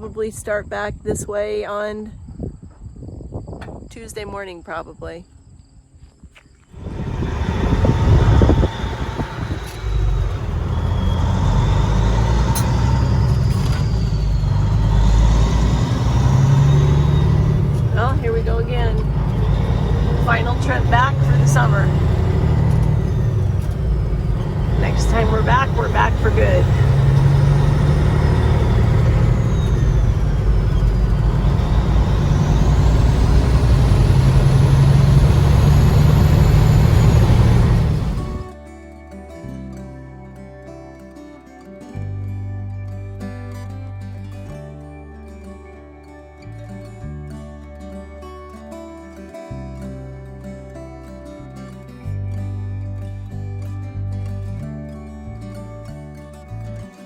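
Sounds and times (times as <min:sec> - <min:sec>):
road noise: 0:06.7 - 0:38.6
truck engine running: 0:06.8 - 0:38.5.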